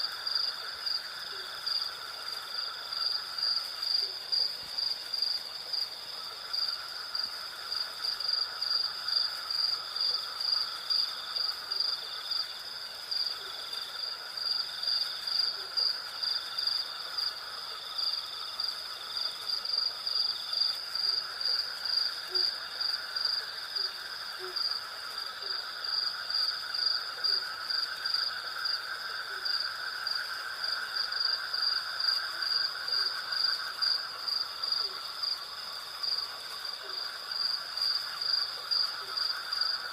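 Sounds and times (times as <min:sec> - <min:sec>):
pulsing cricket chirps: 0:00.0 - 0:39.9.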